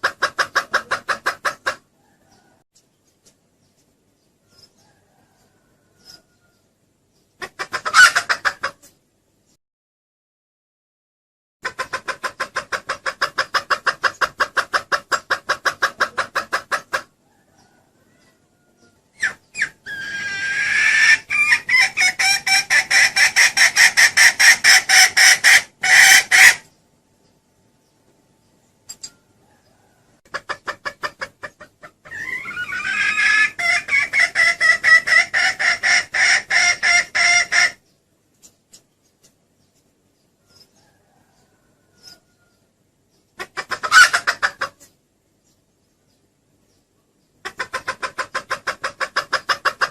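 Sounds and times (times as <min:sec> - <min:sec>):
hen cackling: 0:00.0 - 0:02.6, 0:07.4 - 0:08.9, 0:11.6 - 0:26.7, 0:29.4 - 0:37.8, 0:43.4 - 0:45.0, 0:47.4 - 0:49.9.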